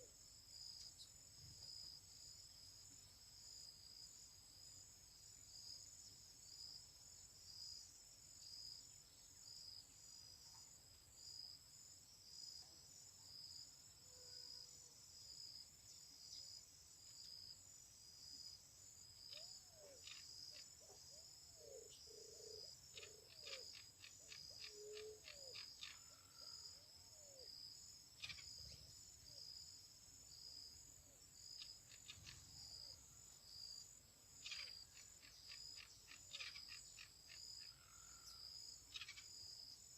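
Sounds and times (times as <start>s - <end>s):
insect trilling: 19.2s - 27.5s, 28.2s - 29.4s, 31.4s - 33.0s, 34.4s - 39.6s
short low chirping calls: 34.4s - 37.4s, 38.9s - 39.3s.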